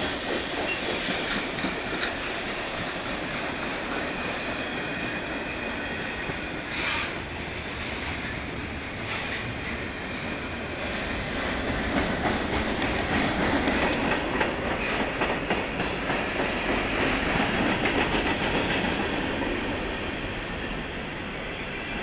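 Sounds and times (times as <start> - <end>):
train wheels clicking: 0.0 - 7.3, 8.9 - 21.9
freight train wheels rumbling: 0.0 - 22.0.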